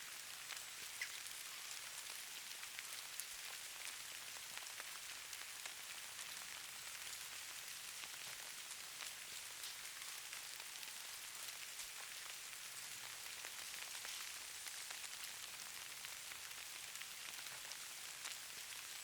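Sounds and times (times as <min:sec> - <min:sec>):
hiss of falling snow: 0:00.0 - 0:19.0.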